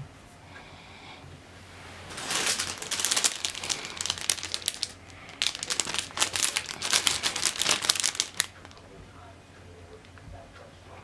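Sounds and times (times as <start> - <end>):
packaging crinkling: 2.0 - 8.9.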